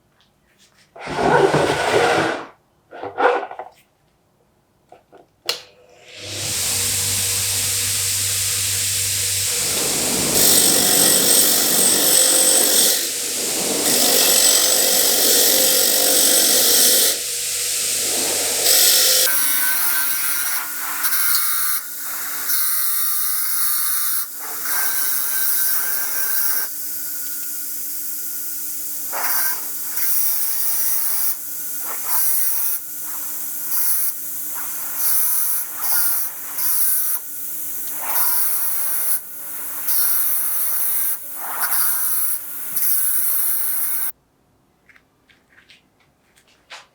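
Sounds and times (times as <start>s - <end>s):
scraping bursts: 1.0s - 2.5s, 6.3s - 19.7s
steady motor hum: 6.1s - 19.6s
loud abrasive whirr: 6.1s - 19.7s.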